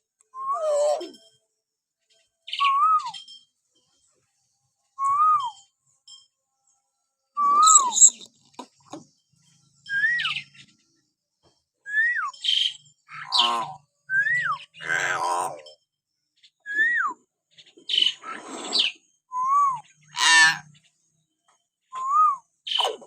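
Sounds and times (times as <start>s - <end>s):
myna bird whistling: 2.5s - 3.4s, 5.0s - 5.6s, 7.4s - 8.3s, 9.9s - 10.6s, 11.9s - 15.1s, 16.6s - 17.2s, 17.9s - 20.6s, 21.9s - 23.0s
harsh rasping bird calls: 7.4s - 9.0s, 12.2s - 15.8s, 16.4s - 19.2s, 19.8s - 21.0s, 22.6s - 23.0s.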